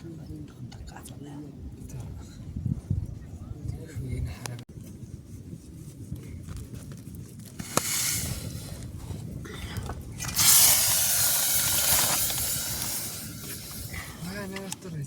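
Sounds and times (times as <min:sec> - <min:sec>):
loud steady hiss: 0:07.6 - 0:08.8, 0:10.2 - 0:14.6
short hiss: 0:07.6 - 0:08.8, 0:10.2 - 0:14.4.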